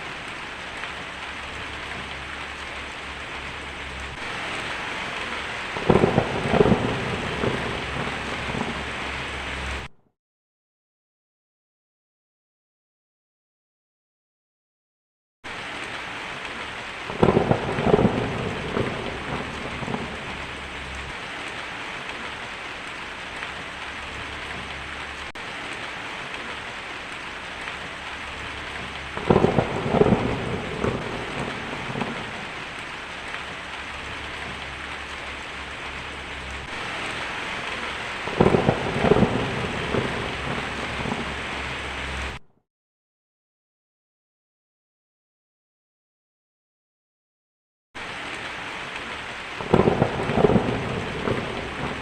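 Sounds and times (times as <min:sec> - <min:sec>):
heavy rain: 0:00.0 - 0:09.9, 0:15.5 - 0:42.4, 0:48.0 - 0:52.0
thunder claps: 0:00.8 - 0:09.9, 0:17.1 - 0:22.2, 0:23.2 - 0:42.4, 0:49.6 - 0:52.0.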